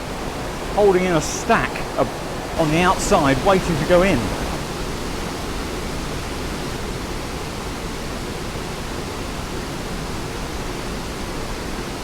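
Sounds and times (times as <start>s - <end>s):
waterfall roaring: 0.0s - 6.5s.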